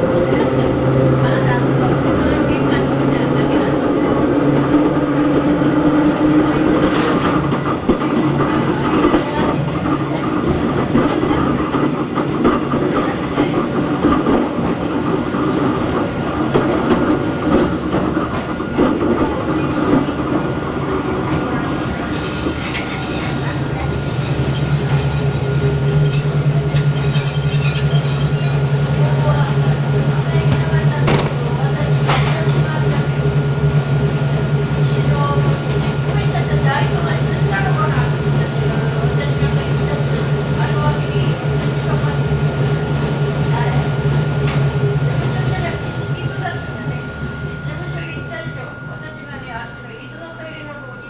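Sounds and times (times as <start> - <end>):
wheels clattering on rail: 0.0 - 50.6
train motor hum: 0.0 - 51.0
high wheel squeal: 20.8 - 29.0.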